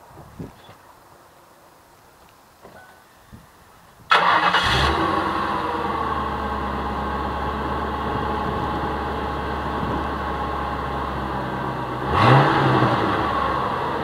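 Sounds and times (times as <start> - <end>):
engine revving: 4.1 - 10.0, 11.9 - 14.0
car engine idling: 4.1 - 14.0.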